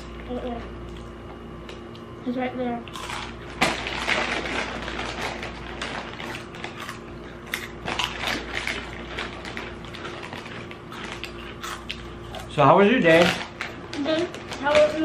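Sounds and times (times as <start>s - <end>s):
people chewing crunchy snacks: 2.9s - 14.9s.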